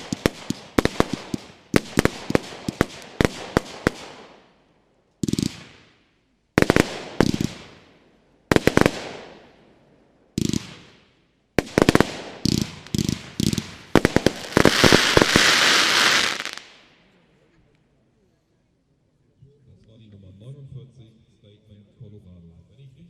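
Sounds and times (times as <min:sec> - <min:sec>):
firework bangs: 0:00.0 - 0:04.5, 0:05.2 - 0:09.6, 0:10.4 - 0:17.0
firework crackle: 0:00.0 - 0:04.5, 0:05.2 - 0:06.0, 0:06.6 - 0:07.9, 0:08.5 - 0:09.5, 0:10.4 - 0:17.0.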